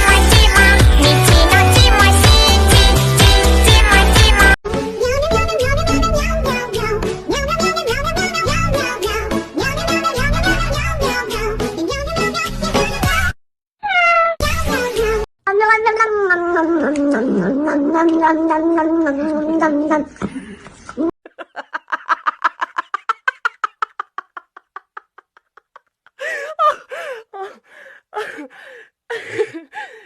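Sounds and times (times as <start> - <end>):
cat yowling: 13.8 - 14.4.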